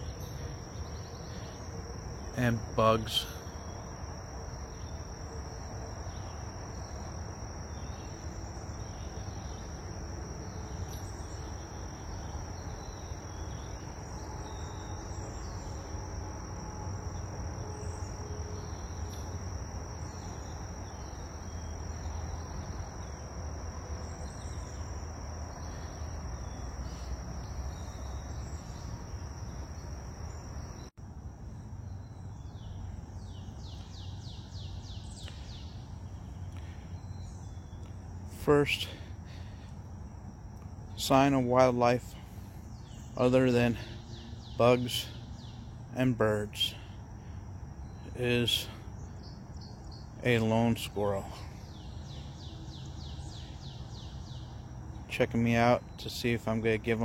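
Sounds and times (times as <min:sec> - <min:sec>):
insects trilling: 0:00.0 - 0:57.0
bird chirps: 0:31.8 - 0:39.9, 0:40.9 - 0:57.0.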